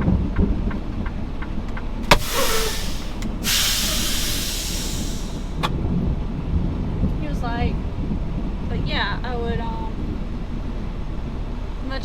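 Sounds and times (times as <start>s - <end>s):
diesel engine idling: 0.6s - 6.4s
air brake releasing air: 2.1s - 5.7s
air brake click: 2.1s - 5.8s.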